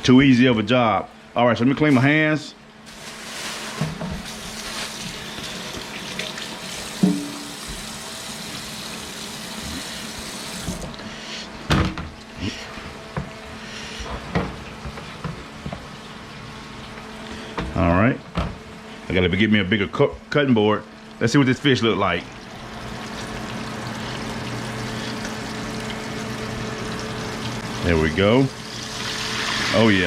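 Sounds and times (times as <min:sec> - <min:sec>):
tap water running over hands: 0:04.4 - 0:10.9.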